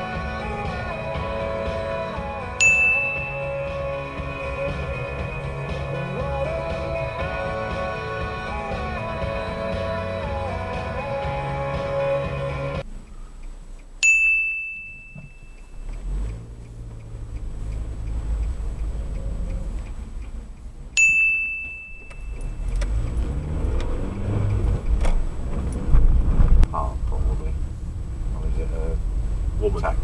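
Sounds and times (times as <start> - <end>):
car engine and road rumble: 0.0 - 30.0
high electronic beep: 2.6 - 3.8, 14.1 - 15.9, 21.0 - 22.6.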